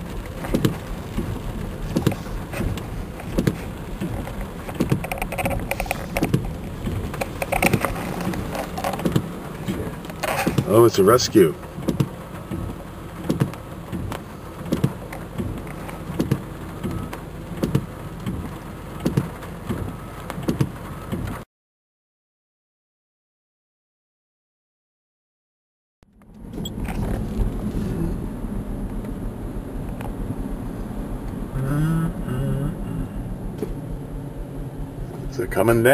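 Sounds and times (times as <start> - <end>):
rain heard inside a car: 0.0 - 21.4, 26.1 - 35.9
vehicle engine pulses: 0.0 - 21.4, 26.0 - 35.9
windshield wipers thumping: 0.0 - 21.4, 26.2 - 35.9
man's voice: 31.6 - 33.3, 35.2 - 35.9.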